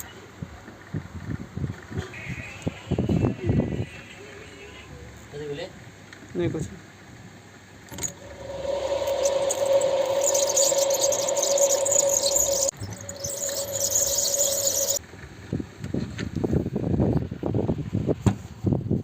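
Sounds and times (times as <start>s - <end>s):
small electric motor whine: 8.0s - 15.0s
hiss: 8.1s - 15.0s.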